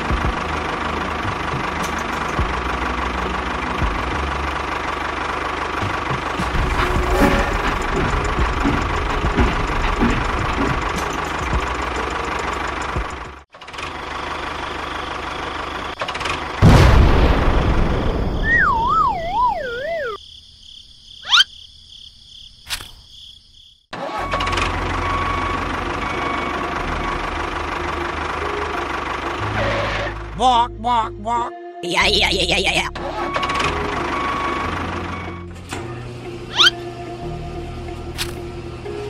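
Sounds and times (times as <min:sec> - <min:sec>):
wobbling cartoon tone falling: 0:18.4 - 0:20.2
toy tractor engine sound effect: 0:18.6 - 0:20.2, 0:28.1 - 0:35.4, 0:36.5 - 0:36.8
quick rising whistle: 0:36.5 - 0:36.8.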